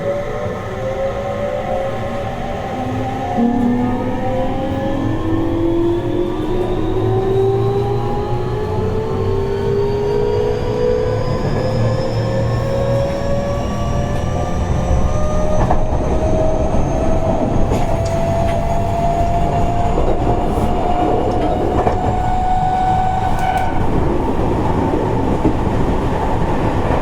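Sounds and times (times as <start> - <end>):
wheel and rail rumble: 0.1 - 27.0
rail joint clicks: 15.2 - 27.0.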